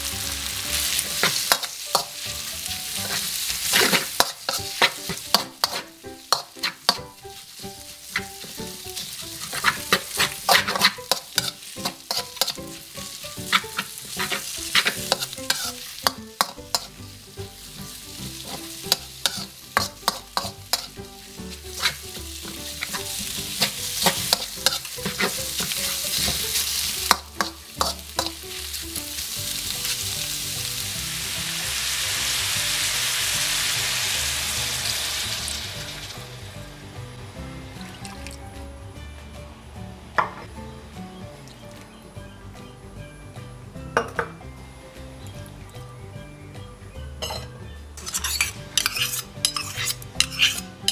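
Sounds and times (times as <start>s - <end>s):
meat sizzling in hot oil: 0.0s - 38.6s, 48.0s - 50.9s
metal spatula clanking on wok: 3.0s - 7.2s, 8.1s - 17.0s, 18.4s - 21.0s, 21.7s - 28.4s, 47.2s - 50.9s.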